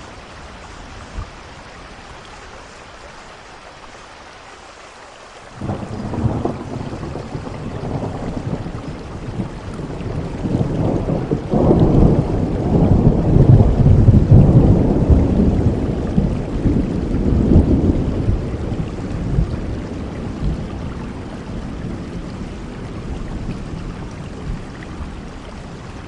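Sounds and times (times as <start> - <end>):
steady rainfall: 0.0 - 26.0
rolling rumble of thunder: 5.6 - 26.0.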